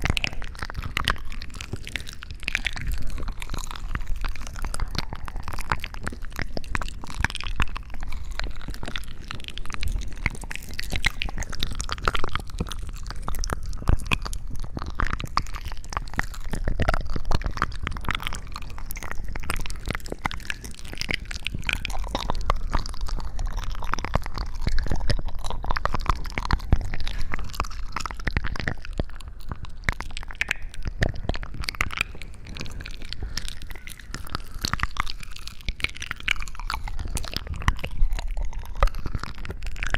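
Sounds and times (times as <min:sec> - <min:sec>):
wet crackles clicks and squishes: 0:00.0 - 0:39.9.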